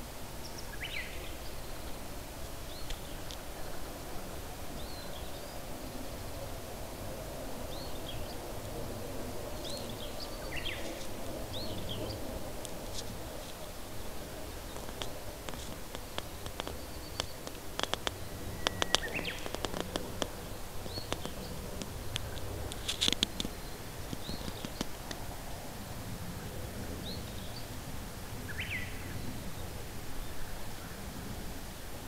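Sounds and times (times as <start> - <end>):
faint outdoor rumble: 0.0 - 32.0
birds chirping: 0.4 - 6.6, 7.6 - 25.3
sharp clicks: 14.7 - 25.2.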